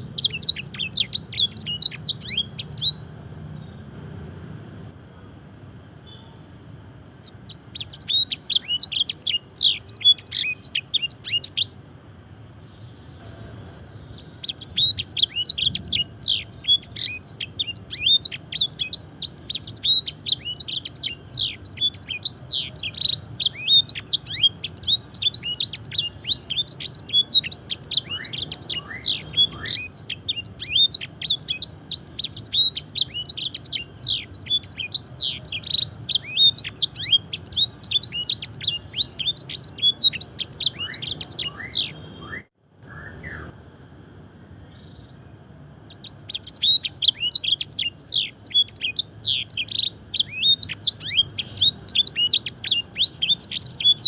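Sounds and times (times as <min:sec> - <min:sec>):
canary singing chirps and trills: 0:00.0 - 0:43.6, 0:44.2 - 0:54.0.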